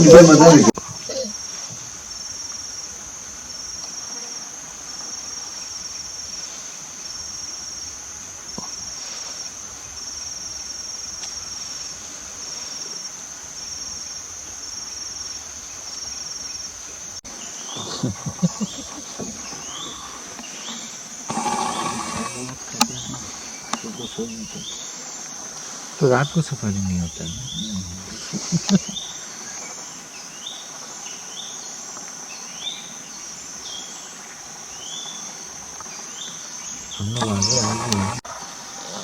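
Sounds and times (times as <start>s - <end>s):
insects shrilling: 0.0s - 2.9s, 16.0s - 30.5s, 34.7s - 39.0s
high pulsing insect call: 0.0s - 39.0s.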